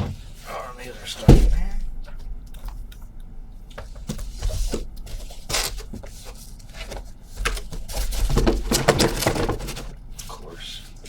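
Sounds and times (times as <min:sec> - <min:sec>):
cardboard boxes scraping: 0:03.8 - 0:10.2.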